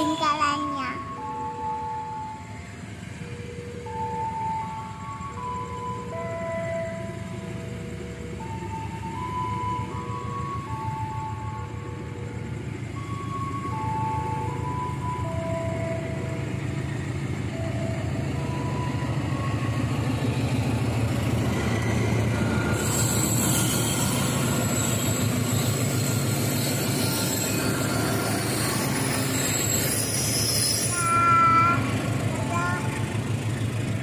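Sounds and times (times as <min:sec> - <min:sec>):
train engine and wheels rumbling: 0:00.0 - 0:34.0
high wheel squeal: 0:20.6 - 0:33.7.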